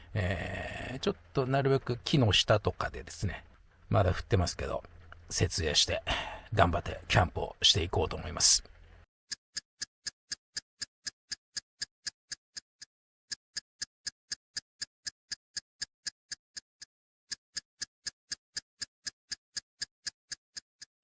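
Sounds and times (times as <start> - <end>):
clock ticking: 9.3 - 12.6, 13.3 - 16.7, 17.3 - 20.9.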